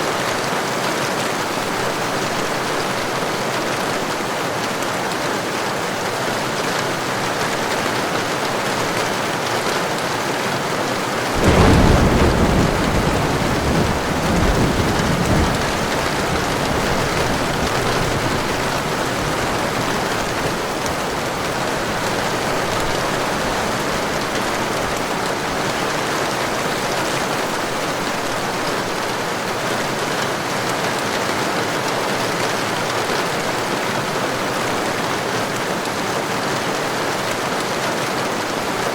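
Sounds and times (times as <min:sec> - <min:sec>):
heavy rain falling: 0:00.0 - 0:38.9
thunder clap rumbling: 0:11.3 - 0:25.6.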